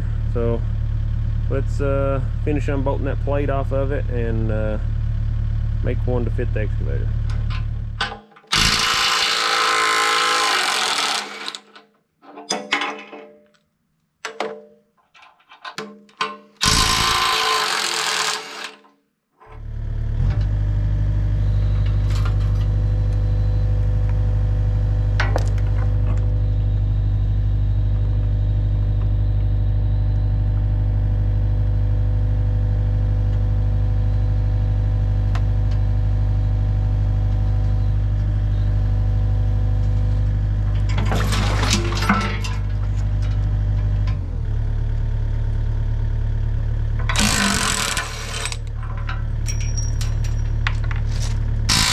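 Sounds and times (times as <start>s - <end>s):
engine idling: 0.0s - 8.0s
rapid machine hammering: 47.2s - 48.6s.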